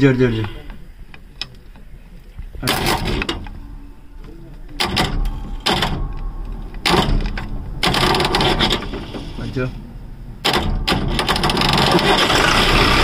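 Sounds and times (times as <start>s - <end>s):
diesel engine starter cranking: 2.6s - 3.6s, 4.7s - 13.0s.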